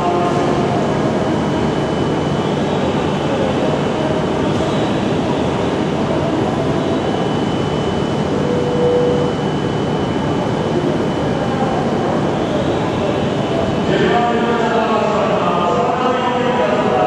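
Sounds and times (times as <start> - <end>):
brief tone: 6.7 - 13.7.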